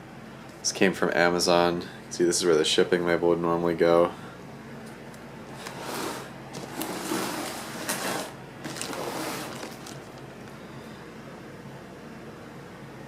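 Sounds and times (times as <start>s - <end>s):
cardboard box scraping and rustling: 5.5s - 10.1s.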